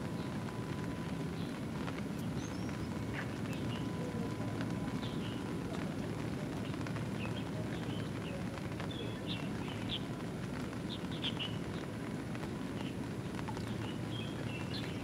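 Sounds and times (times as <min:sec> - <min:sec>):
rain patter: 0:00.0 - 0:15.0
small birds chirping: 0:02.2 - 0:04.0, 0:06.6 - 0:10.1, 0:10.9 - 0:11.8, 0:12.8 - 0:15.0.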